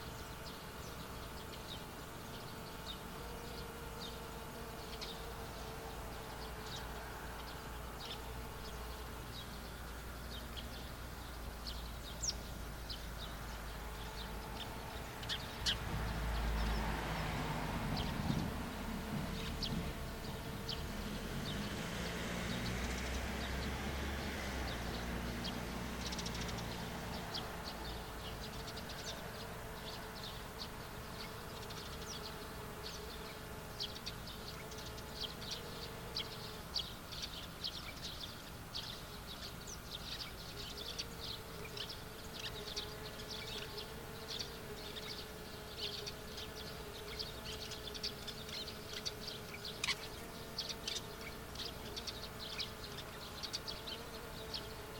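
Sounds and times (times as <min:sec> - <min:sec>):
insects buzzing: 0:00.0 - 0:54.9
small birds chirping: 0:00.0 - 0:54.9
low engine rumble: 0:13.4 - 0:29.0.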